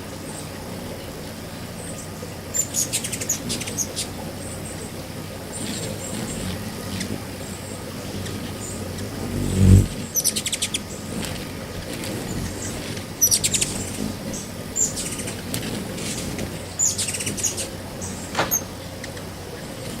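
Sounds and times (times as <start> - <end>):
birds chirping: 0.3 - 19.9
low thump: 18.3 - 18.9.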